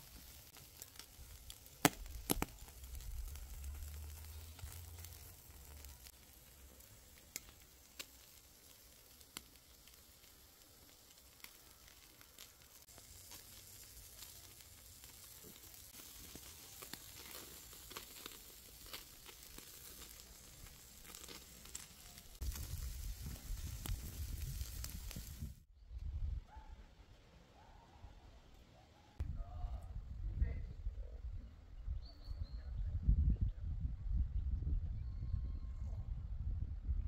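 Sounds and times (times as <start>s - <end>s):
food sizzling in a pan: 0.0s - 25.7s
low rumbling: 1.1s - 7.1s.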